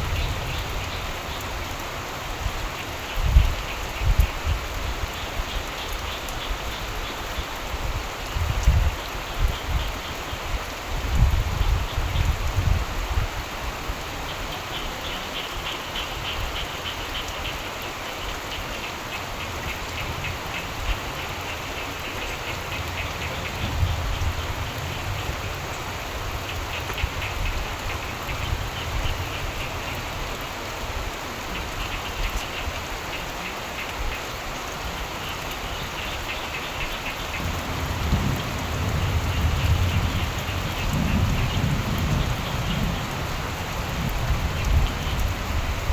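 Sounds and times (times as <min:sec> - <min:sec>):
steady rain falling: 0:00.0 - 0:45.9
frogs calling: 0:14.2 - 0:30.6, 0:31.4 - 0:45.9
low rumbles of thunder: 0:22.7 - 0:29.6, 0:37.3 - 0:45.9.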